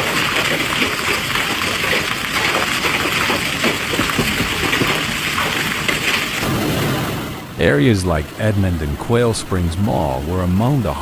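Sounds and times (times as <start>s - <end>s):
hail and rain on hard surfaces: 0.0s - 7.3s.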